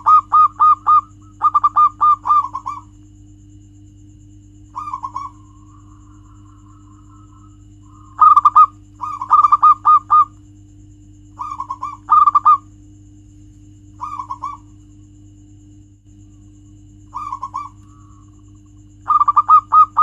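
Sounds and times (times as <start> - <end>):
dove cooing: 0.0 - 3.0, 4.7 - 10.4, 11.4 - 12.7, 14.0 - 14.8, 17.0 - 20.0
steady low hum: 0.0 - 20.0.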